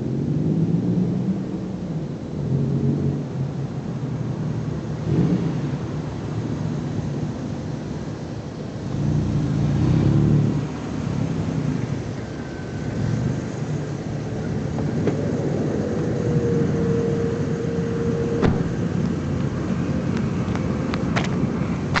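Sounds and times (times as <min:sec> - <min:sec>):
loud engine exhaust rumble: 0:00.0 - 0:22.0
faint steady tone: 0:06.1 - 0:19.8.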